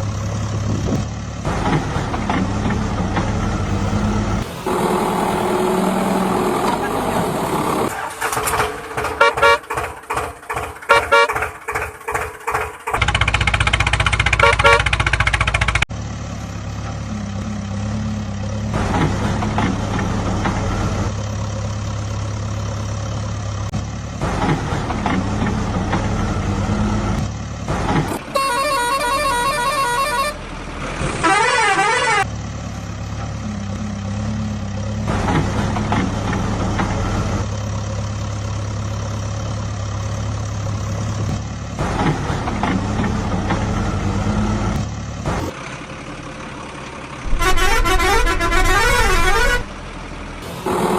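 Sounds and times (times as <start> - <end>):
heavy vehicle engine drone: 0.0 - 50.9
vehicle horn: 9.0 - 9.8, 10.9 - 11.5, 14.4 - 15.1, 28.3 - 30.4, 31.2 - 32.3, 47.3 - 49.7.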